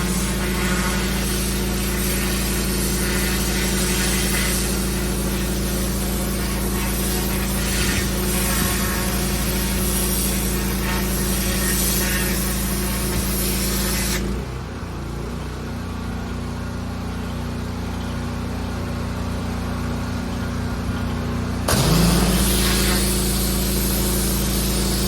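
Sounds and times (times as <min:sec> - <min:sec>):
water jet hissing: 0:00.0 - 0:14.4, 0:21.7 - 0:25.0
pressure washer engine hum: 0:00.0 - 0:25.0.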